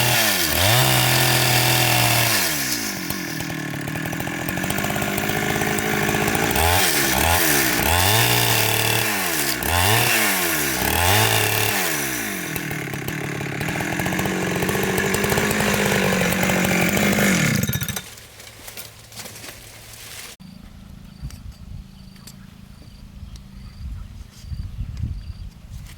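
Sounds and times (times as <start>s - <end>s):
chainsaw running: 0.0s - 20.0s.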